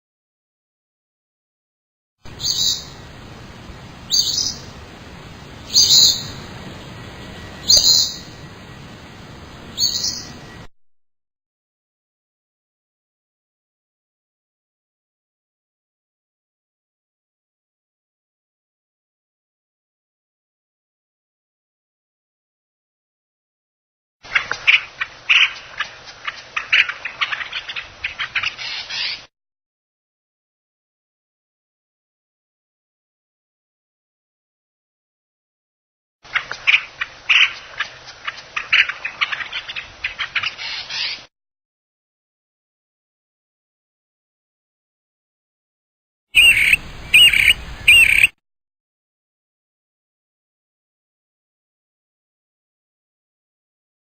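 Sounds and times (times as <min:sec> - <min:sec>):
bird chirping: 0:02.3 - 0:03.1, 0:03.9 - 0:04.8, 0:05.4 - 0:10.7, 0:46.4 - 0:48.4
steady low hiss: 0:02.3 - 0:10.7, 0:46.4 - 0:48.3
stream water gurgling: 0:46.4 - 0:48.3.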